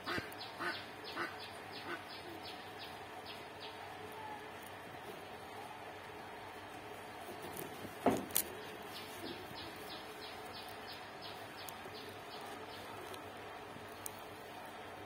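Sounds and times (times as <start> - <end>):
bird chirping: 0.3 - 3.8, 8.5 - 13.0.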